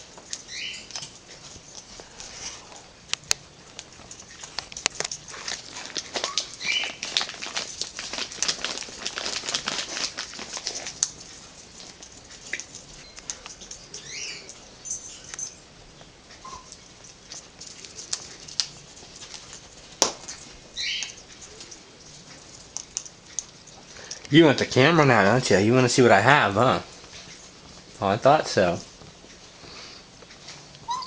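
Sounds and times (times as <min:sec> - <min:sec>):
parrot cracking a peanut shell: 0:00.1 - 0:14.6, 0:16.6 - 0:24.3
parrot chirping: 0:00.3 - 0:01.0, 0:06.2 - 0:07.0, 0:12.5 - 0:15.7, 0:16.4 - 0:17.0, 0:20.7 - 0:21.4.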